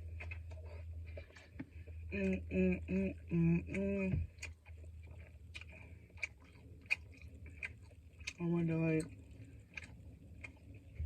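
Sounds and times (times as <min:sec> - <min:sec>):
low steady hum: 0:00.0 - 0:11.0
soft eating clicks: 0:00.0 - 0:11.0
woman making wordless sounds: 0:02.1 - 0:04.3.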